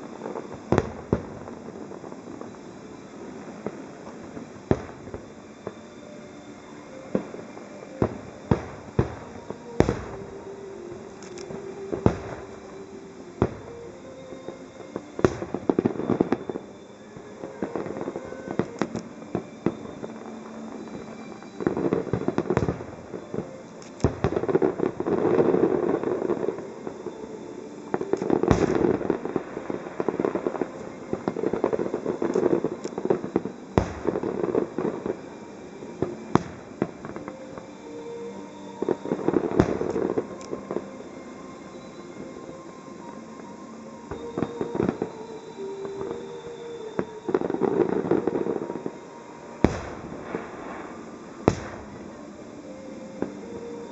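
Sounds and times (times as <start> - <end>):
fireworks bangs: 0.0 - 53.9
fireworks crackling: 0.0 - 53.9.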